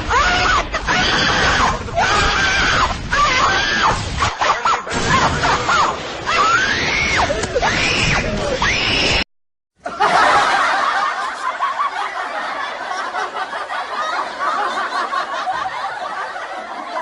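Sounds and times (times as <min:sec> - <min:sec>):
high wailing screams: 0:00.0 - 0:09.2.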